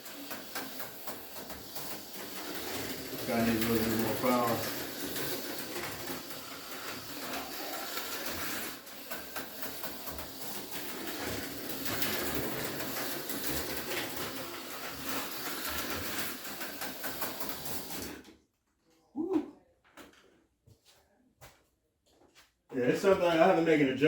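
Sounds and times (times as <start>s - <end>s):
slot car motor rattling buzz: 0.0s - 18.2s.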